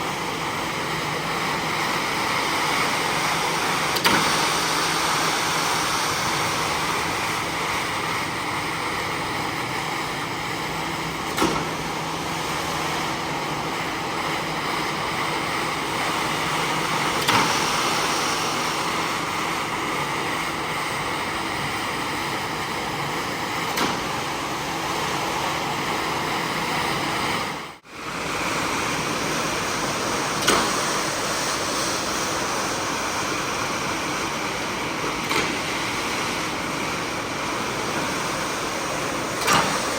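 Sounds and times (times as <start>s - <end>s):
carpet cleaning machine hissing: 0.0s - 39.9s.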